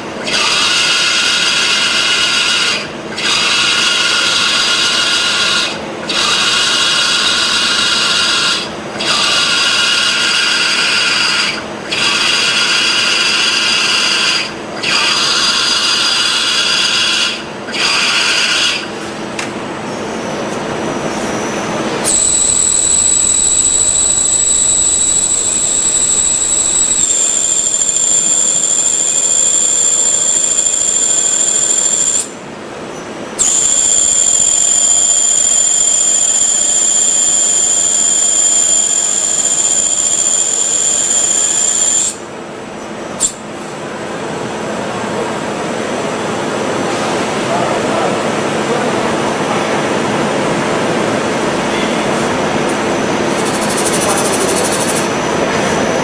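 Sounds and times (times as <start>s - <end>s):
high-pitched machine whine: 0.0s - 19.1s, 19.8s - 56.0s
milling machine cutting: 0.3s - 18.8s, 22.1s - 32.3s, 33.4s - 42.1s.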